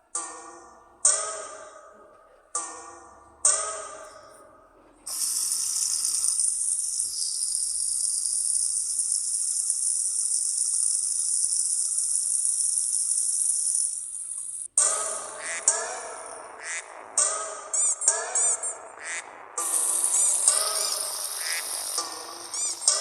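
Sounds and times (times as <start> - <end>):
water spraying hiss: 5.1 - 16.8, 19.1 - 23.0.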